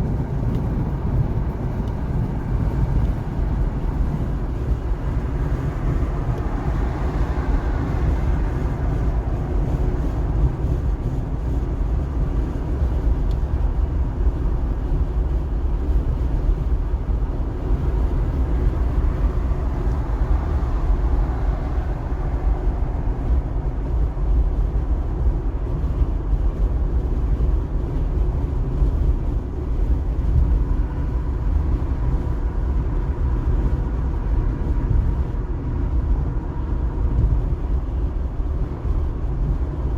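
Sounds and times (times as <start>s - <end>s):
car road noise with tyre hiss: 0.0s - 39.9s.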